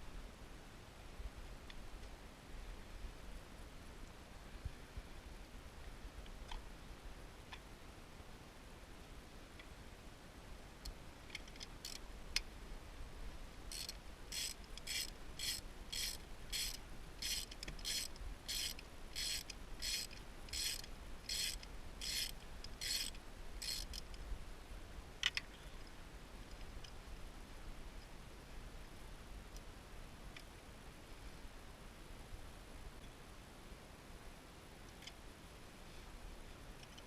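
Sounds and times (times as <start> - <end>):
ratchet wrench clicks: 13.7 - 24.0
ratchet wrench rasping: 13.7 - 24.0.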